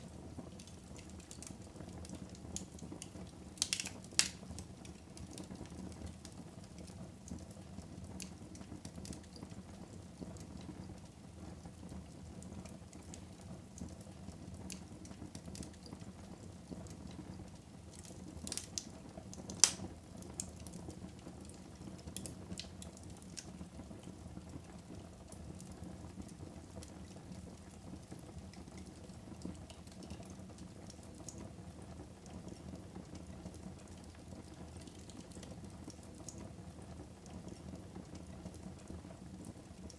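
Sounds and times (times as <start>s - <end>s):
fire crackling: 0.0s - 39.9s
sharp fire pops: 3.6s - 4.6s, 19.4s - 19.9s.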